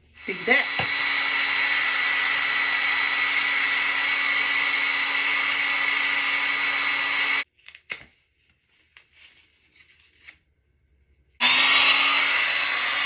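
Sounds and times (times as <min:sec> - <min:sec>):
hair dryer whining: 0:00.0 - 0:07.5, 0:11.4 - 0:13.0.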